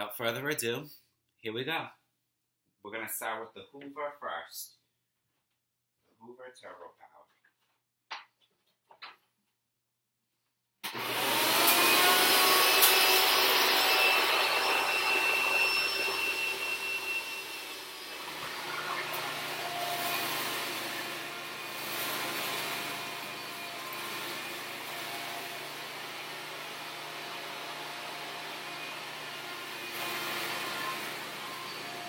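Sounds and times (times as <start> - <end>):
vacuum cleaner motor whine: 10.8 - 32.0.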